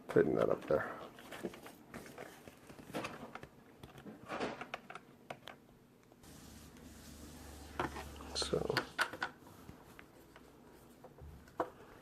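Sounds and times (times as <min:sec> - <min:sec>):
plastic parts clicking and rustling: 0:00.2 - 0:05.6.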